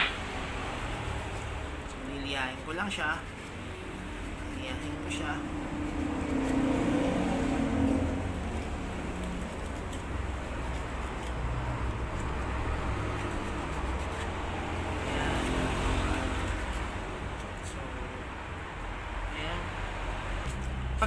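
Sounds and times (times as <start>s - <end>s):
sandpaper scuffing rubber: 2.4s - 17.1s.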